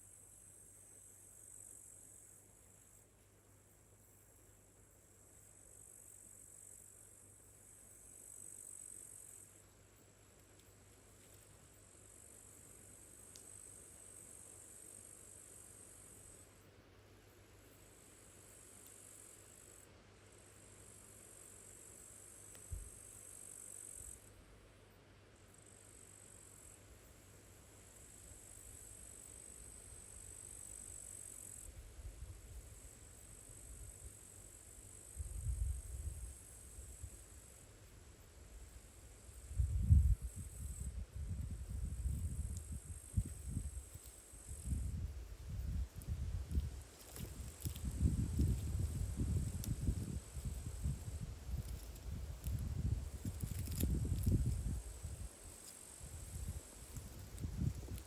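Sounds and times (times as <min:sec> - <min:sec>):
crickets trilling: 0:03.8 - 0:10.1, 0:20.4 - 0:24.4, 0:25.5 - 0:58.0.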